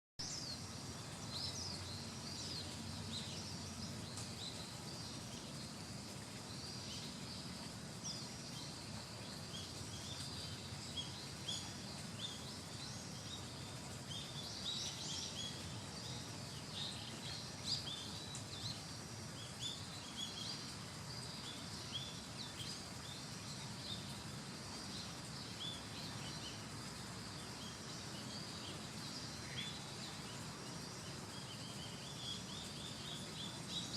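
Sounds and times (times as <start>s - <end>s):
low outdoor background hum: 0.2s - 33.9s.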